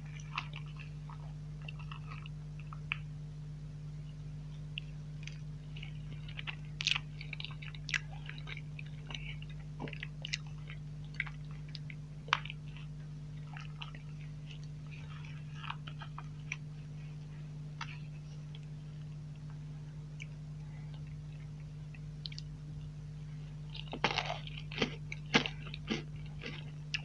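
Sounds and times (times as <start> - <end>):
steady low hum: 0.0 - 27.0
wet chewing and lip smacks: 4.6 - 16.7, 17.8 - 22.9.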